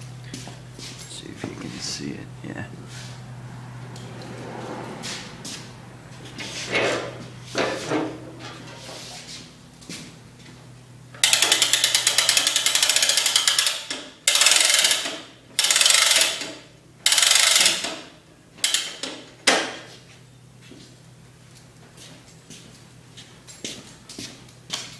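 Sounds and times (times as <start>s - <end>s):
ratcheting hand-crank starter clicking: 11.2s - 18.0s, 18.6s - 19.3s.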